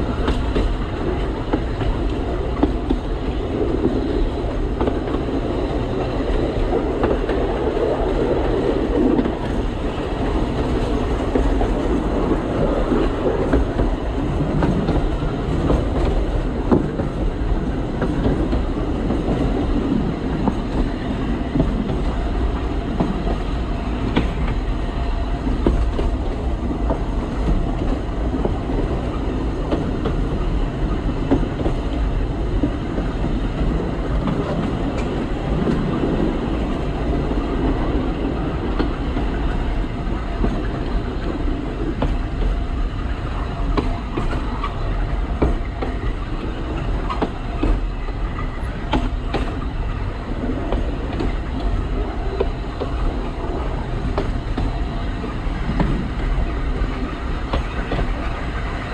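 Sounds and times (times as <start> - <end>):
train rumbling on track: 0.0 - 58.9.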